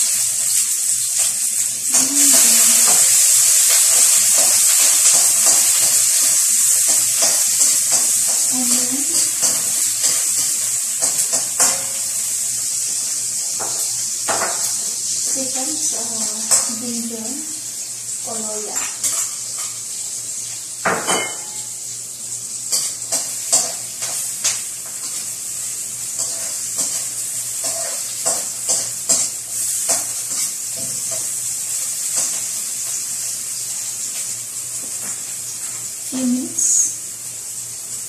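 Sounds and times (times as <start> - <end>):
aromatics sizzling in hot oil: 0.0 - 38.0
metal spatula scraping a wok: 26.2 - 31.3.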